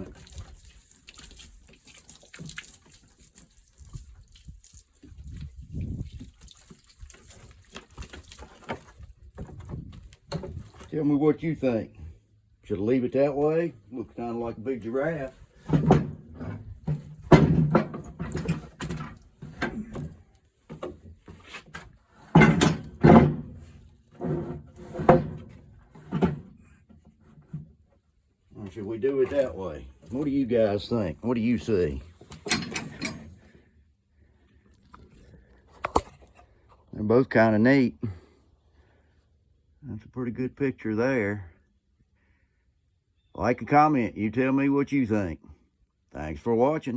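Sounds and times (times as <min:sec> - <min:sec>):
water applied to wood: 0:00.0 - 0:11.0, 0:14.8 - 0:26.5, 0:28.6 - 0:32.4
wooden board knocks and scrapes: 0:15.5 - 0:26.6.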